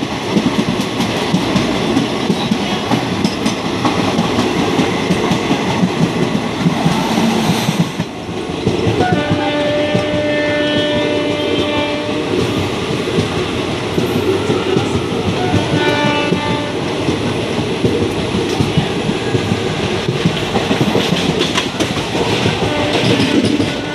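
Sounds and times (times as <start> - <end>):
train wheels rumbling on rails: 0.0 - 23.9
train horn: 8.9 - 12.5, 15.3 - 17.0, 22.6 - 23.9
clatter over rail joints: 13.2 - 23.9.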